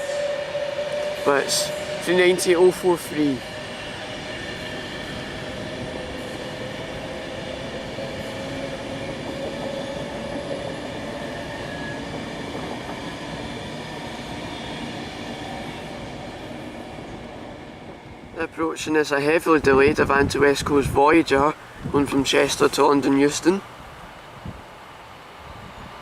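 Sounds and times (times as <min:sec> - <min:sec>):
train whining tones: 0:00.0 - 0:18.9
electric train rolling rumble: 0:00.0 - 0:26.0.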